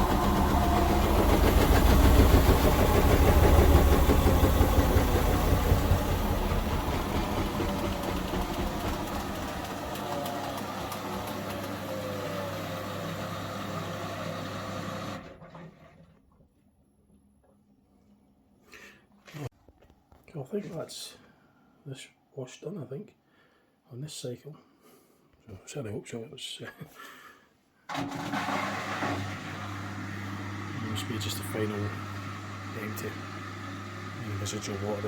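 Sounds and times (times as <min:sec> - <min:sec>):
washing machine spin winding down: 0:00.0 - 0:16.1, 0:27.9 - 0:35.0.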